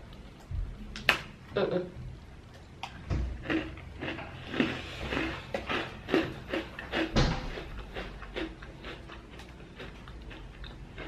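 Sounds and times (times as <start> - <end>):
crunchy biscuit chewing: 3.4 - 11.0
loud thump: 7.1 - 7.5.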